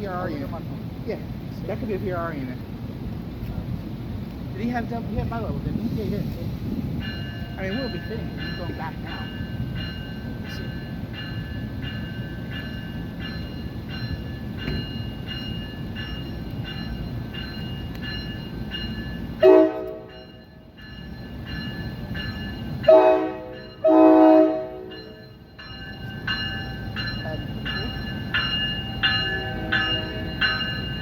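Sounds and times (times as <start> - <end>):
train rumbling: 0.0 - 31.0
railroad crossing bell ringing: 4.7 - 31.0
locomotive horn blasts: 19.4 - 20.1, 22.9 - 24.9.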